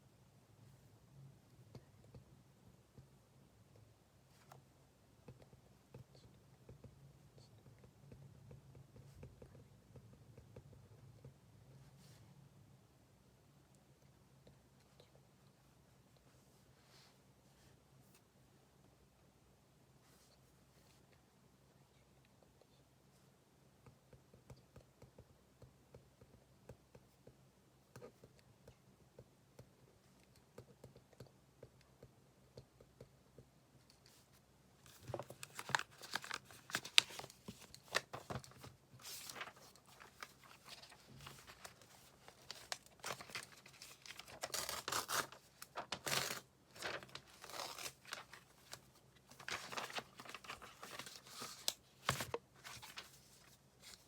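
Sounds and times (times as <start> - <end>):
paper rustling and crinkling: 34.9 - 54.0
paper tearing: 42.6 - 48.3.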